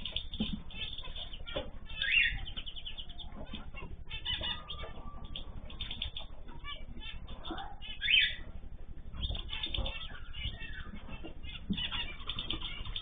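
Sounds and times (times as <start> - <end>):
cage birds chirping and calling: 0.0 - 13.0
loud bird call: 0.7 - 8.4.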